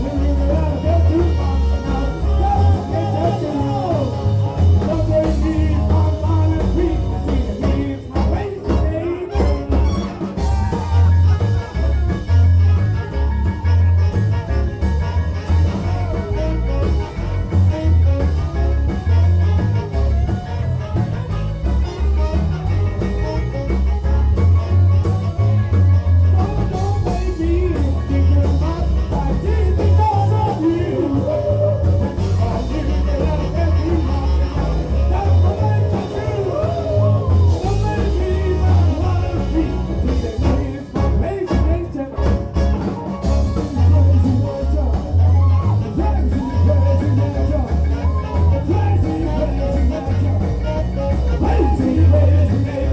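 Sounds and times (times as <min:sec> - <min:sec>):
person singing: 0:00.0 - 0:12.4, 0:26.3 - 0:52.9
booming bass: 0:00.0 - 0:52.9
live rock band playing: 0:00.0 - 0:52.9.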